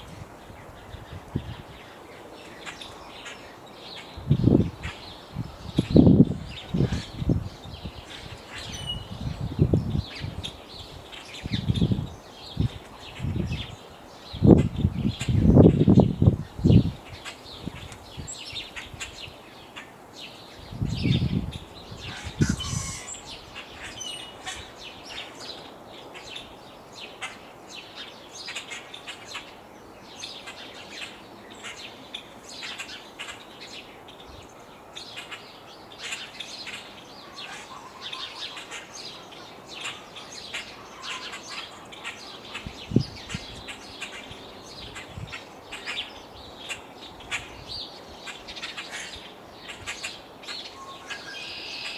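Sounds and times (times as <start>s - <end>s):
wind buffeting microphone: 0.0s - 2.0s, 4.0s - 19.4s, 20.6s - 24.8s, 42.5s - 48.6s
small birds chirping: 0.0s - 51.9s.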